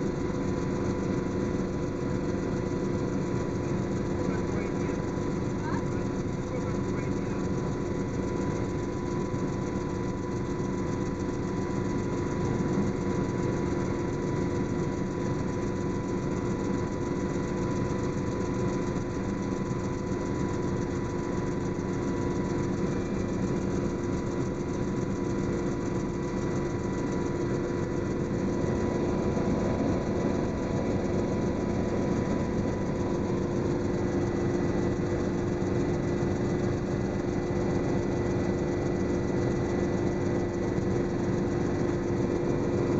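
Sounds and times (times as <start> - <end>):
helicopter engine and rotor drone: 0.0 - 42.9.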